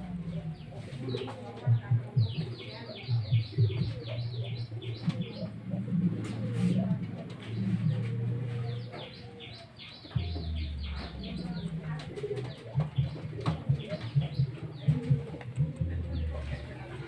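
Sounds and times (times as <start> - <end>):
low cooing: 0.0 - 17.0
high bird chirps: 7.4 - 14.5.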